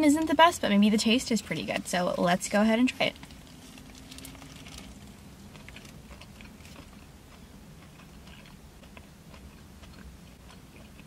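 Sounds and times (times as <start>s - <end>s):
low steady hum: 0.0s - 11.0s
person chewing: 3.1s - 11.0s.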